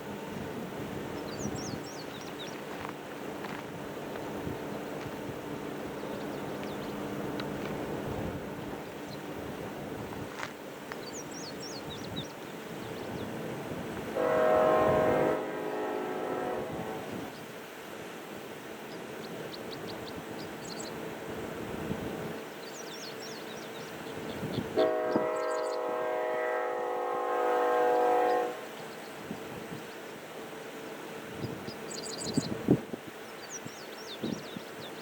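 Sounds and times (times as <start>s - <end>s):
locomotive air horn: 14.1s - 17.3s, 24.8s - 28.8s.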